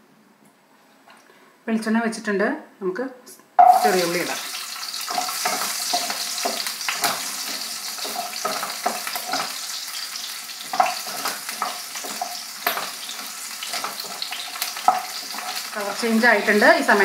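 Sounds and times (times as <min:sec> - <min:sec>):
shallots sizzling in oil: 0:03.6 - 0:17.0
wooden spatula scraping a pan: 0:05.0 - 0:17.0.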